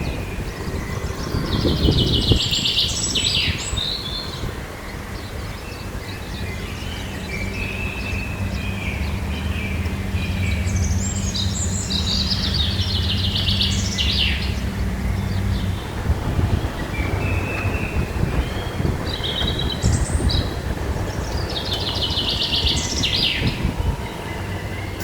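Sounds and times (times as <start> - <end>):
birds singing and calling: 0.0 - 25.0.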